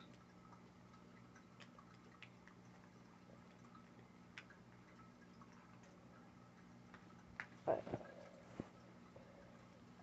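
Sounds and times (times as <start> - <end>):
faint small clicks: 1.3 - 5.1.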